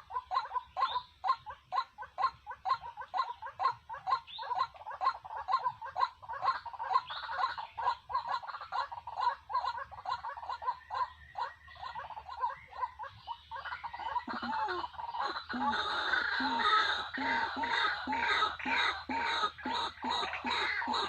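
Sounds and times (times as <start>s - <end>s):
bird clucking: 0.0s - 21.0s.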